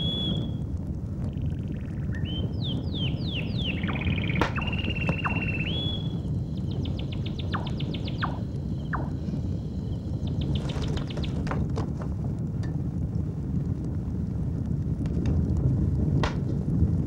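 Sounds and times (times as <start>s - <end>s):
birds calling: 0.0s - 0.5s, 1.3s - 11.5s
steady low hum: 0.0s - 17.0s.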